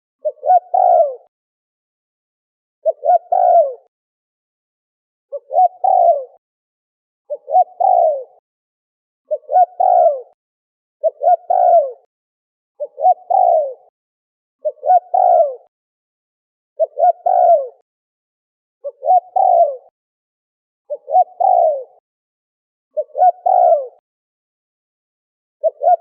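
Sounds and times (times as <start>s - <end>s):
dove cooing: 0.2s - 1.3s, 2.8s - 3.9s, 5.3s - 6.4s, 7.3s - 8.4s, 9.3s - 10.4s, 11.0s - 12.1s, 12.8s - 13.9s, 14.6s - 15.7s, 16.8s - 17.8s, 18.8s - 19.9s, 20.9s - 22.0s, 23.0s - 24.0s, 25.6s - 26.0s.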